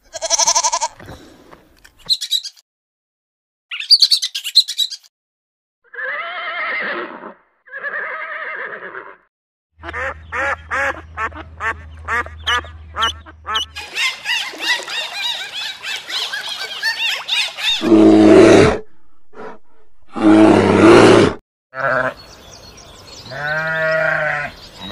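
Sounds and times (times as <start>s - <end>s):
long drawn-out animal calls: 0.0s - 1.0s, 5.8s - 9.3s, 13.8s - 22.2s
steady low hum: 18.8s - 20.3s.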